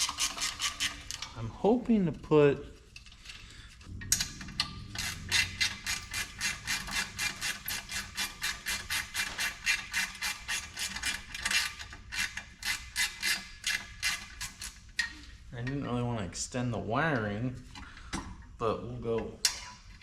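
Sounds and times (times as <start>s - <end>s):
rasping hand tool strokes: 5.0s - 11.7s.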